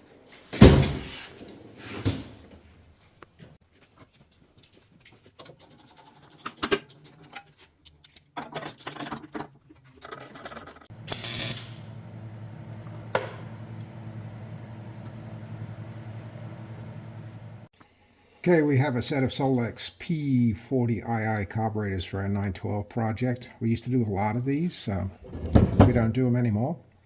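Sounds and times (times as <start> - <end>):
steady low hum: 10.9 - 17.7.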